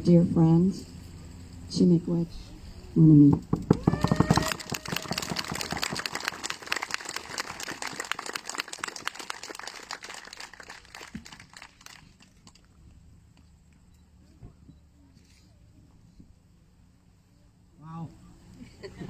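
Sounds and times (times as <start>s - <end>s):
audience applauding: 3.9s - 12.6s.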